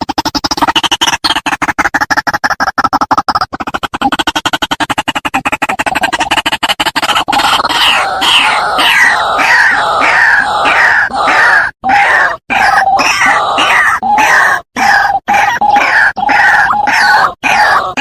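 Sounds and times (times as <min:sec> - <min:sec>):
waterhen calling harshly: 0:07.4 - 0:18.0.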